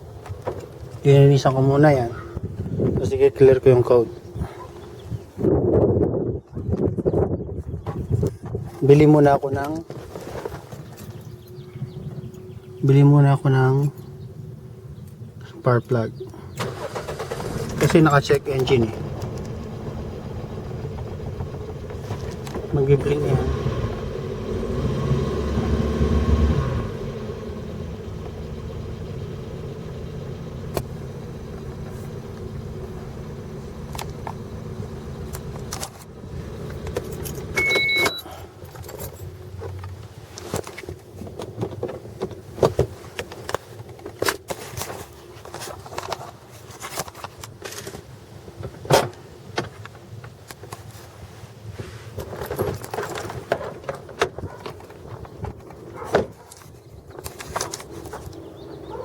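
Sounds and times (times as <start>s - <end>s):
car engine running: 0.0s - 6.0s, 7.8s - 47.5s, 52.3s - 59.0s
short electronic beep: 37.6s - 38.3s.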